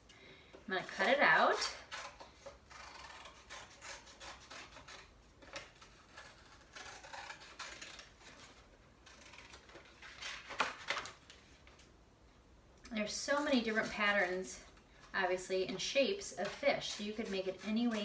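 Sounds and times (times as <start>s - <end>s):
scissors snipping cardboard: 16.4s - 18.0s.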